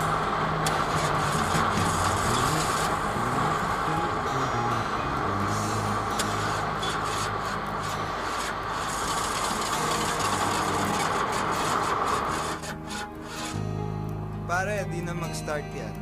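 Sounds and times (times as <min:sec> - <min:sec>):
dense rushing noise: 0:00.0 - 0:12.4
motorcycle engine running: 0:00.0 - 0:14.0.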